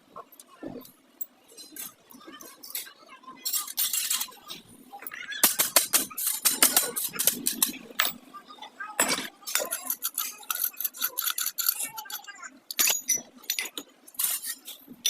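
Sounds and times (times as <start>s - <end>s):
metal tools clicking and clinking: 0.2s - 8.2s, 9.0s - 15.0s.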